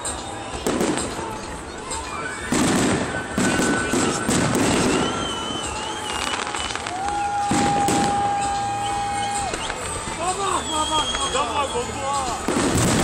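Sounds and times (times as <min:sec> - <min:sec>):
fireworks banging and crackling: 0:00.0 - 0:13.0
long steady whistle tone: 0:02.1 - 0:07.4, 0:08.0 - 0:12.5.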